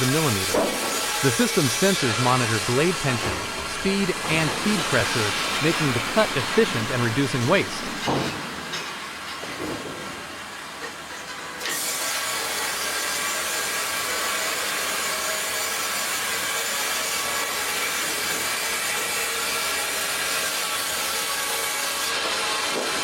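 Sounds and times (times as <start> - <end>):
band saw blade cutting log: 0.0 - 8.2, 11.7 - 23.0.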